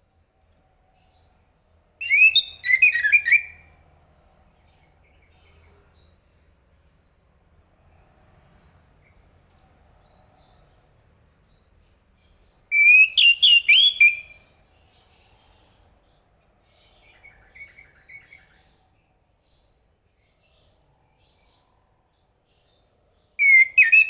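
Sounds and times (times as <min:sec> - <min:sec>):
thrush singing whistled notes: 0:02.0 - 0:03.7, 0:12.7 - 0:14.6, 0:23.4 - 0:24.0.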